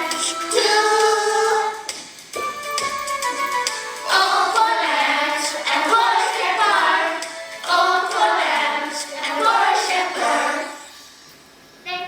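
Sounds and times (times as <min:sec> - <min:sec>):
children singing in chorus: 0:00.0 - 0:01.9, 0:04.0 - 0:11.0.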